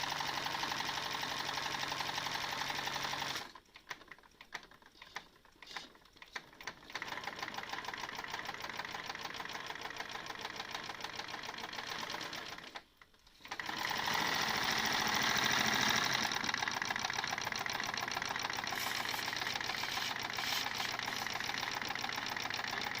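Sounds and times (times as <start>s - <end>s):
irregular clicks: 3.4s - 8.5s
steam engine mechanical beat: 16.4s - 23.0s
steam hiss: 18.6s - 21.4s.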